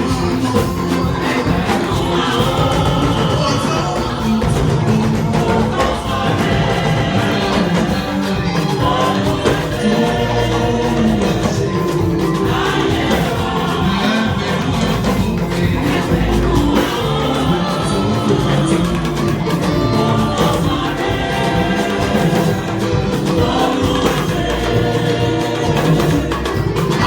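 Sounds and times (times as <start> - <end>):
church choir singing: 0.0 - 27.0
instrumental accompaniment with beat: 0.0 - 27.0.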